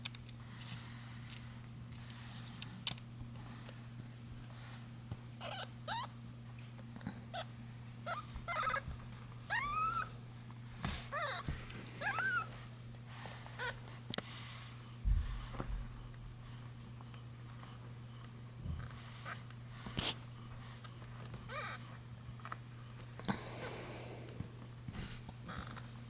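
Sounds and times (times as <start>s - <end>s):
steady low hum: 0.0s - 26.0s
kittens mewing: 5.4s - 6.1s, 7.3s - 8.9s, 11.1s - 12.6s, 21.5s - 22.0s.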